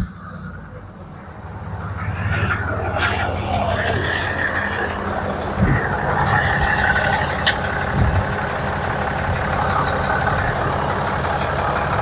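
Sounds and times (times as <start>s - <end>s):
diesel engine idling: 0.0s - 12.0s
sharp metallic clicks: 4.2s - 12.0s
low thumps: 4.3s - 8.5s.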